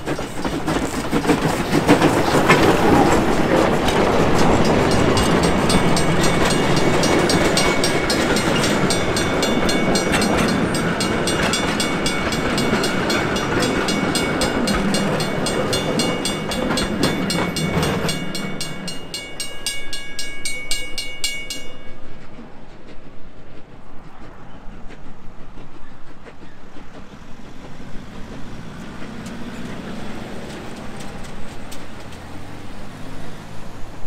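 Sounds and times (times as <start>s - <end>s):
steam locomotive chuffing: 0.0s - 34.0s
train rumbling on rails: 0.0s - 34.0s.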